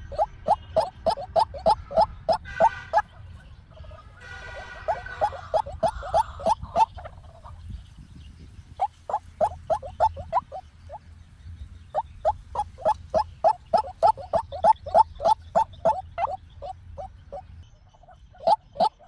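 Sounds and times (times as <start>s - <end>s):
waterhen short rising calls: 0.0s - 3.0s, 4.4s - 7.2s, 8.8s - 10.7s, 12.0s - 17.4s, 18.0s - 19.0s.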